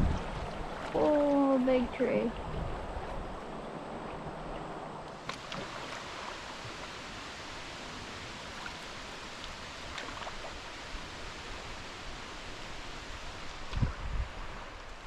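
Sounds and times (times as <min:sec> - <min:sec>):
river water rushing: 0:00.0 - 0:15.0
faint small splashes: 0:05.2 - 0:06.9, 0:08.4 - 0:10.7.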